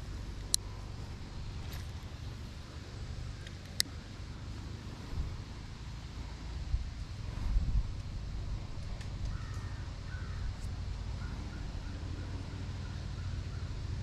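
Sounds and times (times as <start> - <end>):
steady low rumble: 0.0 - 14.0
bird calling faintly: 9.1 - 14.0.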